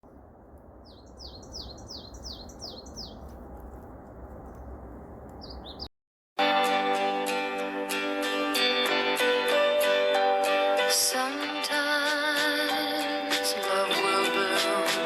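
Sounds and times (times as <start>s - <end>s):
low outdoor rumble: 0.0s - 5.9s
bird singing high notes: 0.8s - 3.2s, 5.4s - 5.9s
acoustic guitar music: 6.4s - 11.7s.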